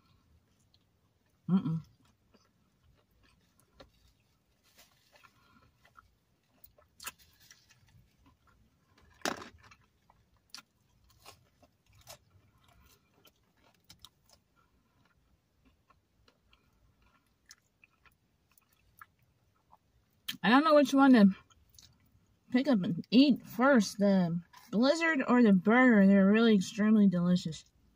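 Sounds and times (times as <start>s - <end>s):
chewing: 0.5s - 19.9s.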